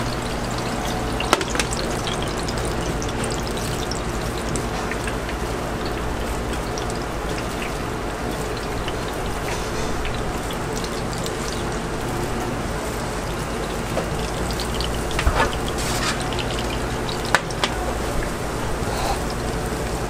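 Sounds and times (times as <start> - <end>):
dough sizzling in hot oil: 0.0 - 20.0.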